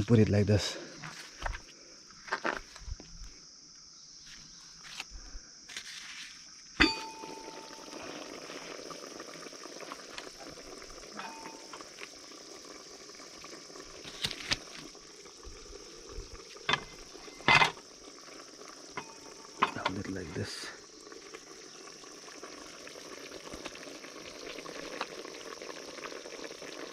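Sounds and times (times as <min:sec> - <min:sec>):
metal clank: 0:06.8 - 0:07.6, 0:16.7 - 0:17.8, 0:19.0 - 0:19.9
curry bubbling in pot: 0:06.8 - 0:26.9.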